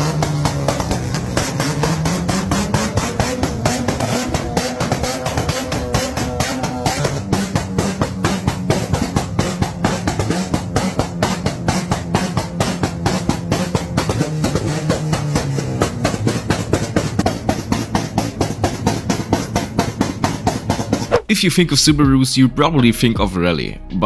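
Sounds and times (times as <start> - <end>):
engine held on limiter: 0.0 - 21.3
exhaust bangs and pops: 0.0 - 24.0.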